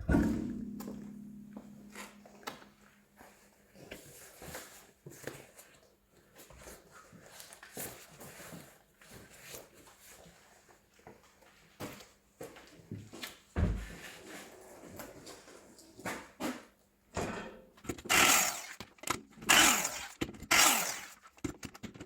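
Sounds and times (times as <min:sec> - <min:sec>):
heavy thump: 0:00.0 - 0:02.8.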